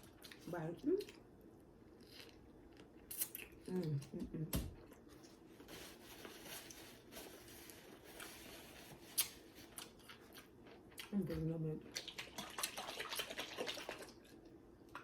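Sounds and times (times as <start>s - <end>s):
crunching and chewing: 9.0s - 11.2s.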